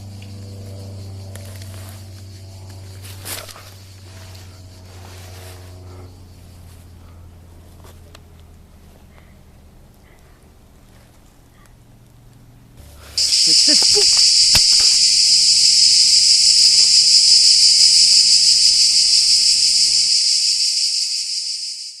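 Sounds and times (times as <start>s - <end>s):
loud cicada buzz: 0.0s - 7.6s, 12.8s - 22.0s
sharp click: 13.2s - 15.2s.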